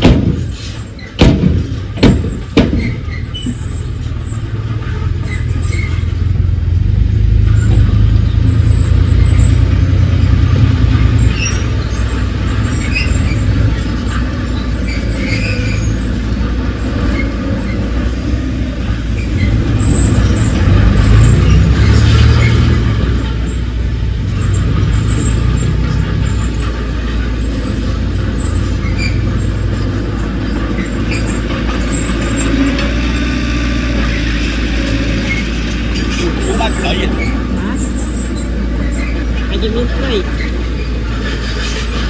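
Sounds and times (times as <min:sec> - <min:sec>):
sharp metallic knocks: 0:00.0 - 0:06.2
heavy diesel engine droning: 0:00.0 - 0:42.0.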